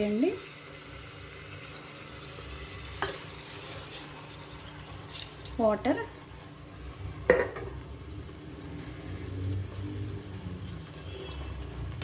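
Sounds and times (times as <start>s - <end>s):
food sizzling in a pot: 0.0s - 12.0s
light stirring: 3.0s - 6.5s, 8.3s - 12.0s.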